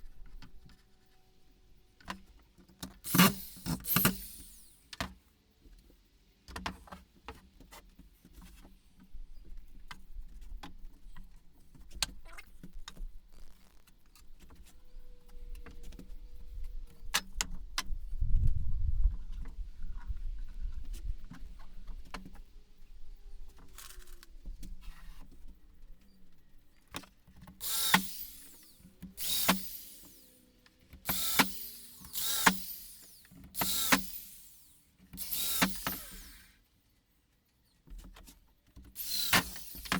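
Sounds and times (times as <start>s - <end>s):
power drill driving screws: 3.0s - 4.9s, 27.6s - 36.6s, 38.9s - 39.9s.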